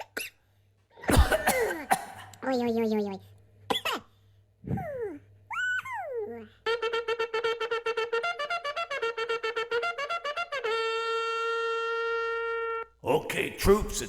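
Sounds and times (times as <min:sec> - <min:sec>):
buzzy horn-like wind instrument: 0:06.6 - 0:13.0.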